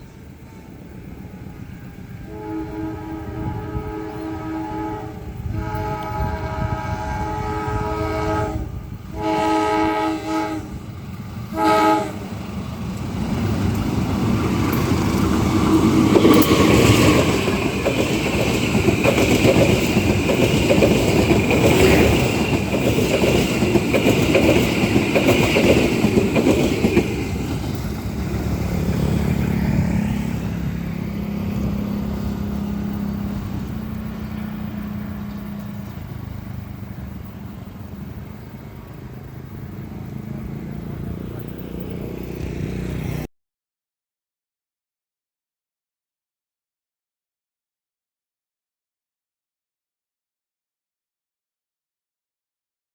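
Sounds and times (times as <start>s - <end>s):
rumbling train wheels and carriages: 0.0s - 43.3s
train horn blasts: 2.2s - 12.4s.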